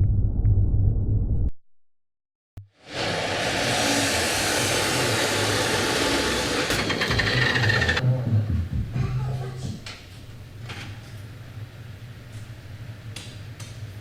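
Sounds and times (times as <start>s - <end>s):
burner blower rushing: 2.7s - 8.0s.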